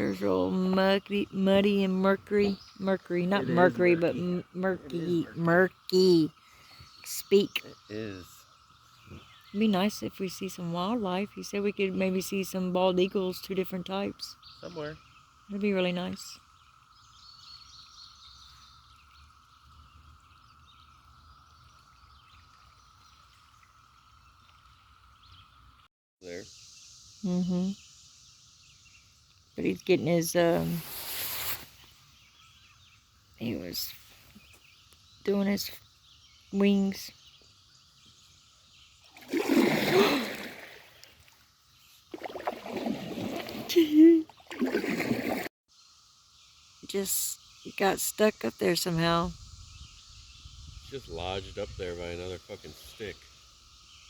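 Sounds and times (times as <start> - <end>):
light bird chirps: 0.0 - 39.7
paddle splashing into water: 39.0 - 45.5.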